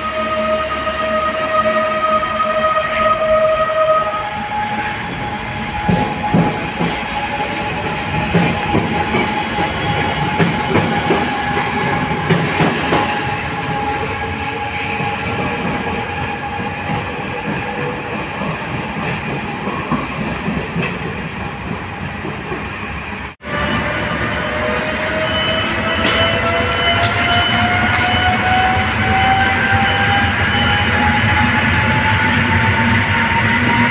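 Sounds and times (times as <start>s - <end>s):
train rolling rumble: 0.0s - 33.9s
train wheels clicking over rail joints: 5.4s - 13.9s, 14.7s - 23.0s, 25.5s - 33.9s.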